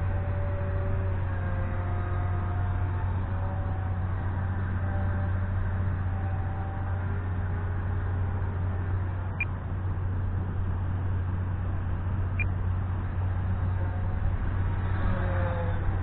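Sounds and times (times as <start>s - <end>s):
wind rumble on microphone: 0.0s - 16.0s
model airplane motor droning: 14.8s - 16.0s.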